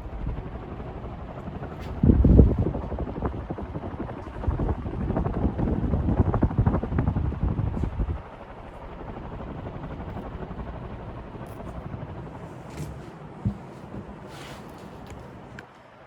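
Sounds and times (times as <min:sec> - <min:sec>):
wind buffeting microphone: 0:00.0 - 0:12.4
ceiling fan running: 0:00.0 - 0:16.0.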